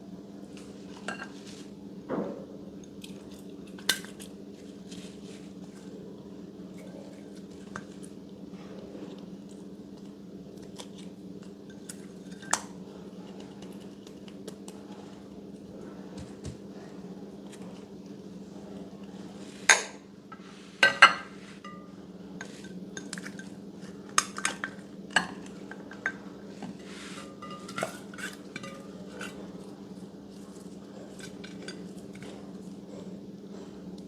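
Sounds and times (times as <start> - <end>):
steady low hum: 0.0 - 34.0
utensil clinking against container: 27.2 - 29.5.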